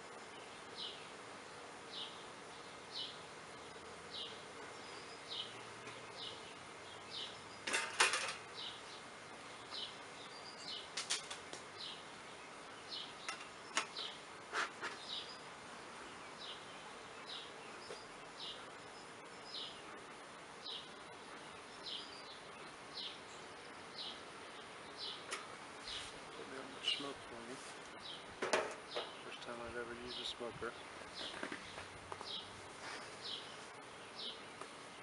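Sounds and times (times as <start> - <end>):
faint bee hum: 0.0 - 35.0
clicks and scrapes of frames: 11.0 - 11.6.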